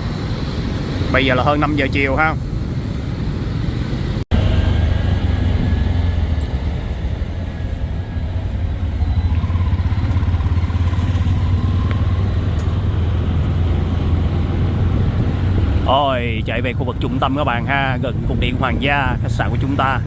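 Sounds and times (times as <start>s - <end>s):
tuk-tuk engine and road rumble: 0.0s - 20.0s.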